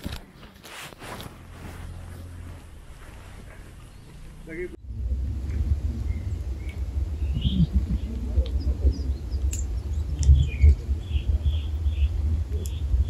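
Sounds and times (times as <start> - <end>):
small birds chirping: 3.2 - 13.0
wind buffeting microphone: 3.8 - 13.0.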